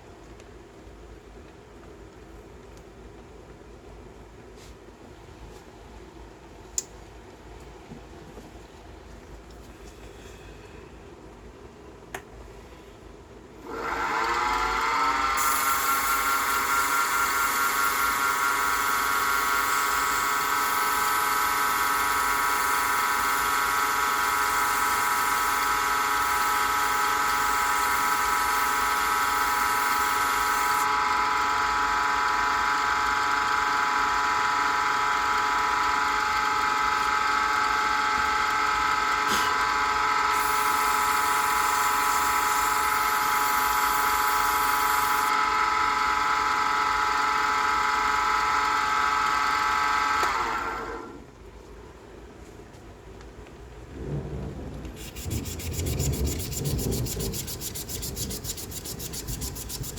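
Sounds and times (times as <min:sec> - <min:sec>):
wood lathe motor whine: 0:13.6 - 0:51.2, 0:55.0 - 0:59.9.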